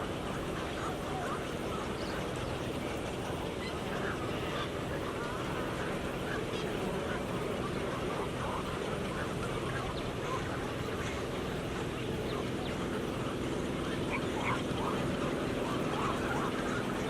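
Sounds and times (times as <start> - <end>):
flock of waterbirds calling: 0.0 - 17.0
steady background hum: 0.0 - 17.0.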